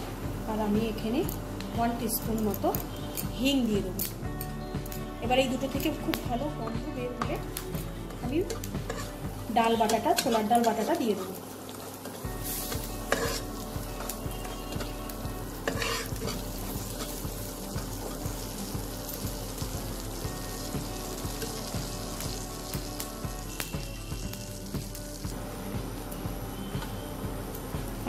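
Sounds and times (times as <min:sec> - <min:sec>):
paste sizzling in hot oil: 0:06.9 - 0:28.0
spatula scraping a wok: 0:08.0 - 0:15.0, 0:15.6 - 0:17.3.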